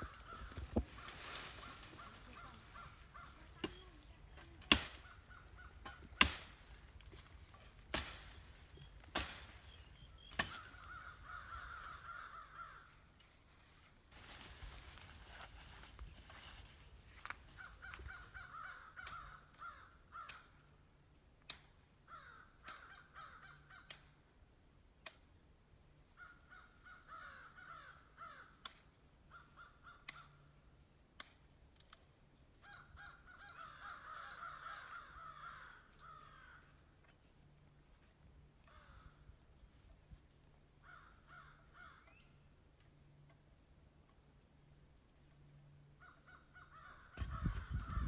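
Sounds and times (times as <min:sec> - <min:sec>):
birds calling: 0:00.0 - 0:12.9, 0:46.0 - 0:48.0.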